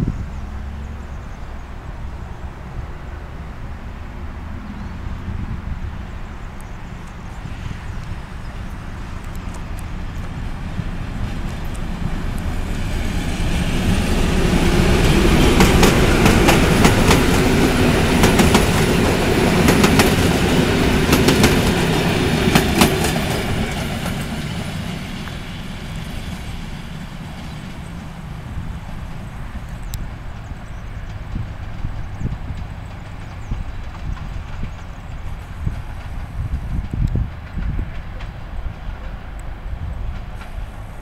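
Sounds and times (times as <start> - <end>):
train rumble: 0.0 - 41.0
wheels clacking over rail joints: 6.1 - 41.0.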